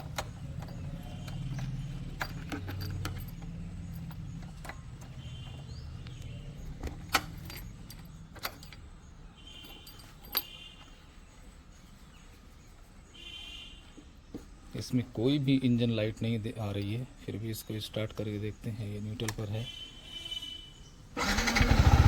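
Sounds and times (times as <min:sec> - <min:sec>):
keys jangling: 0:00.0 - 0:10.9
birds chirping: 0:00.0 - 0:22.0.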